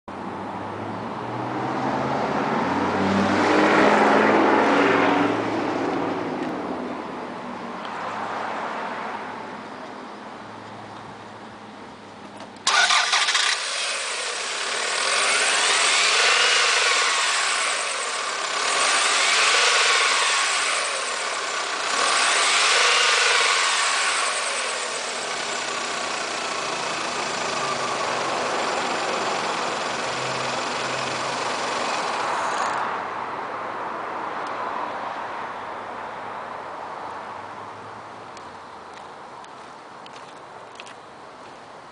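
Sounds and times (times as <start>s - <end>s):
car engine starting and revving: 12.6s - 33.0s.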